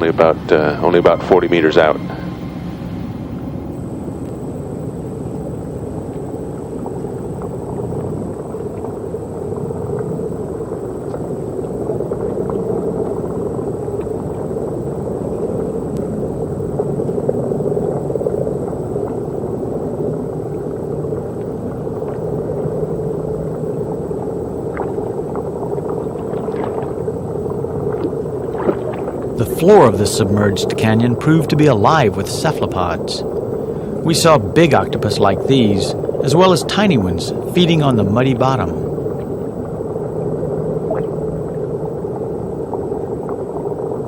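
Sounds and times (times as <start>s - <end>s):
low machinery rumble: 0.0s - 44.0s.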